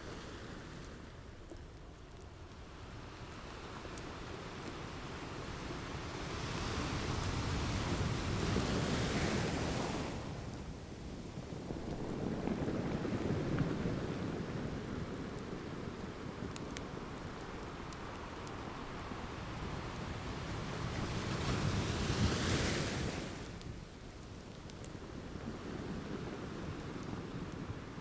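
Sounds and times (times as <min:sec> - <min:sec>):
wood fire crackling: 0:06.8 - 0:20.1, 0:23.5 - 0:28.0.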